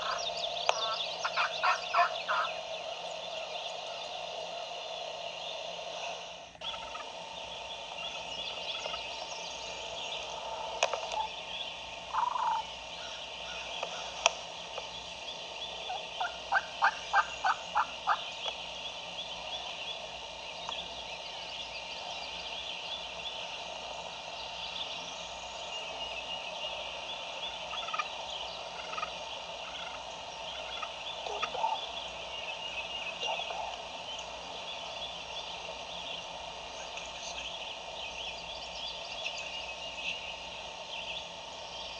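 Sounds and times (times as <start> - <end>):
turkey gobbling: 0.0 - 2.6, 6.6 - 7.2, 12.1 - 14.2, 15.9 - 18.2, 27.5 - 32.3, 33.0 - 33.9
songbird chatter: 0.0 - 41.9.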